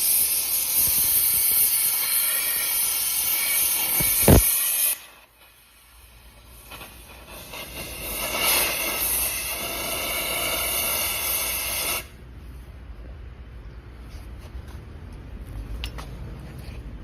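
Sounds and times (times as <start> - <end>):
gas hissing from torch: 0.0 - 12.2.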